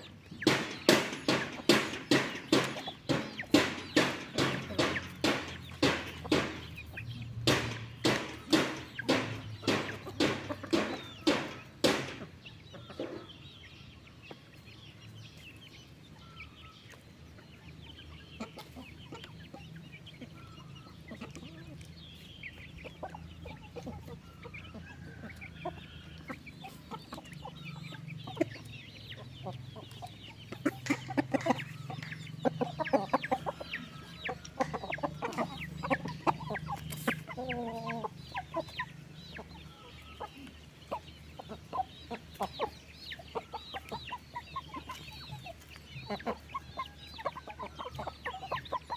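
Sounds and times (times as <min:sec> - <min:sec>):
chickens clucking: 0:00.0 - 0:48.9
sharp knocks: 0:00.3 - 0:12.4.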